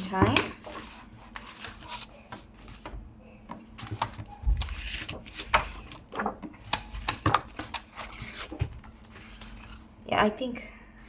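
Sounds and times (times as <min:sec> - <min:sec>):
paper rustling: 0:00.5 - 0:03.0, 0:03.7 - 0:09.9.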